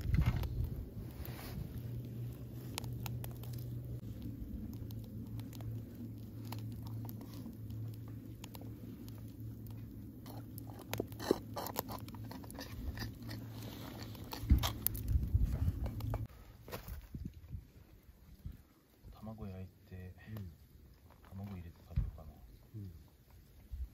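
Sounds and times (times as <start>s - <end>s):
low hum: 0.0s - 16.5s
person chewing crunchy sandwich: 5.0s - 16.2s.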